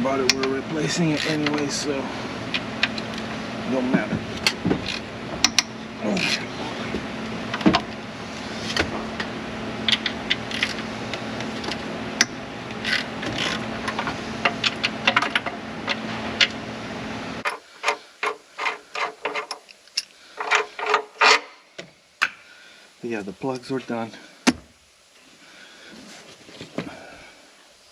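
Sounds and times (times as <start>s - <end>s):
steady hum: 0.0s - 27.9s
ratchet wrench clicking: 12.2s - 13.6s.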